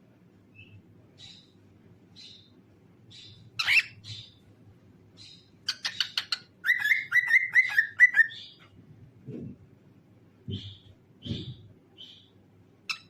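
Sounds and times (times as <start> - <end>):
faint steady hum: 0.0 - 13.0
cockatiel chirping and whistling: 3.6 - 4.3, 5.7 - 8.5.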